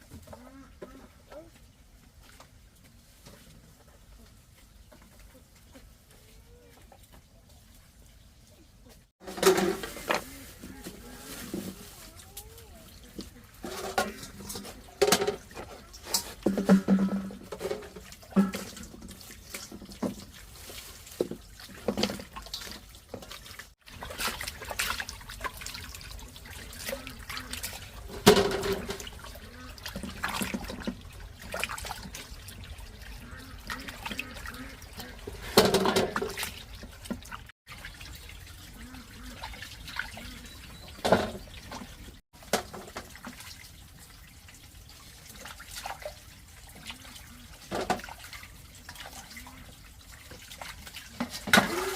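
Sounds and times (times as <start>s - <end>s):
water splashing and trickling: 0.0s - 51.9s
knocks and clatter: 16.4s - 19.1s, 28.1s - 29.1s.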